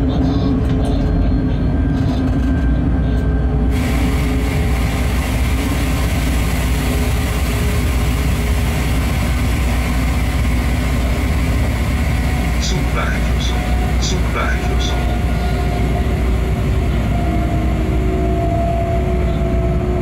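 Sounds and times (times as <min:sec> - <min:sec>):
constant hum: 0:00.0 - 0:20.0
train wheels rumbling on rails: 0:00.0 - 0:20.0.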